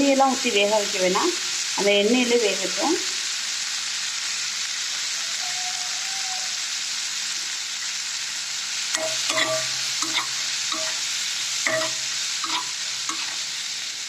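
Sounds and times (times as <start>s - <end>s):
potatoes sizzling in oil: 0.0s - 14.0s
spoon scraping and knocking pan: 8.9s - 13.5s.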